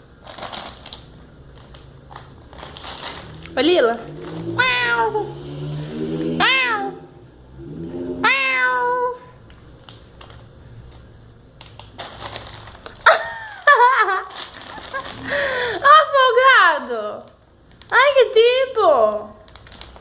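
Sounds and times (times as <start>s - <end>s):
plastic bag rustling: 0.0s - 4.7s, 9.4s - 15.9s, 19.3s - 20.0s
cat meowing: 4.4s - 5.4s, 6.4s - 7.2s, 8.2s - 9.3s.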